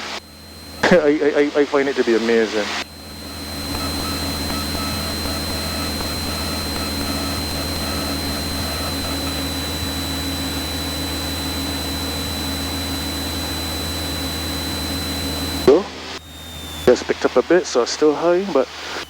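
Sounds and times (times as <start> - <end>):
aircraft engine and propeller droning: 0.0 - 19.0
thin steady whine: 0.0 - 19.0.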